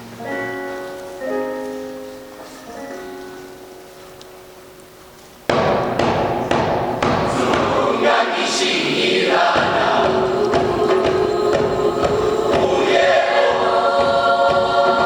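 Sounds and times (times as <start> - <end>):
sharp thuds: 5.5 - 8.3
choir singing loudly: 6.0 - 15.0.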